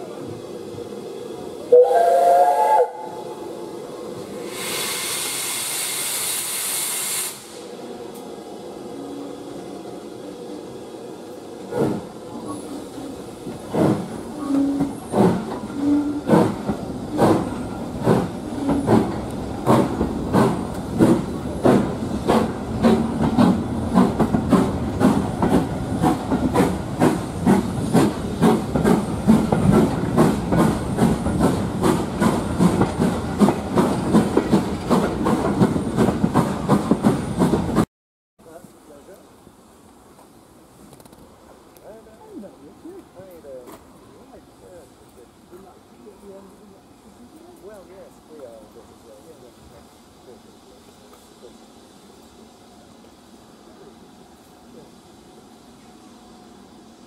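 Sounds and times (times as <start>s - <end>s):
steam locomotive chuffing: 0.0s - 8.0s, 8.8s - 37.9s
loud steam hissing: 0.0s - 37.9s, 41.4s - 57.0s
steam locomotive whistle: 1.7s - 3.2s.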